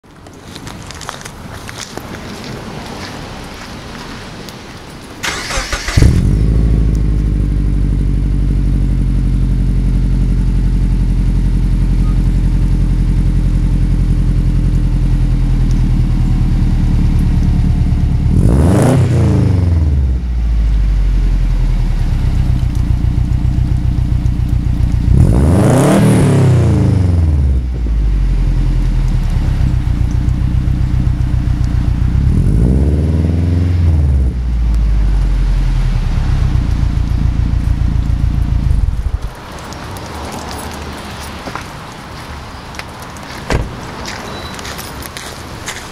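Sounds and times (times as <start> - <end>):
car engine cranking and starting: 5.2 - 19.9
car engine idling and revving: 5.3 - 41.7.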